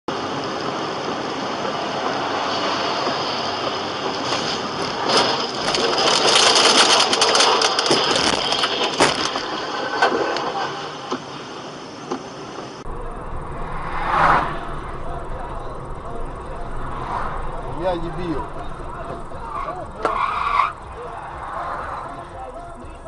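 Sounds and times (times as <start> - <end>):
car road noise: 0.1 - 23.0
dense crackle: 4.1 - 10.9, 12.9 - 23.0.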